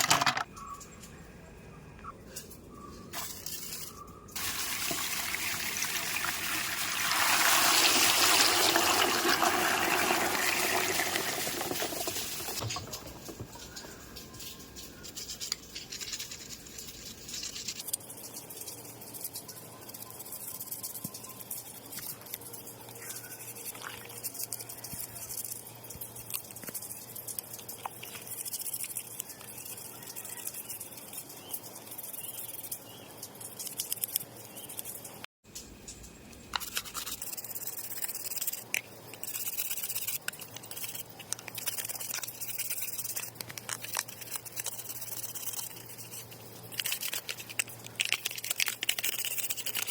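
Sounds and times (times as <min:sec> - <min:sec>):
plastic toy parts clicking and rattling: 0:00.0 - 0:00.9, 0:11.5 - 0:35.2, 0:35.9 - 0:49.9.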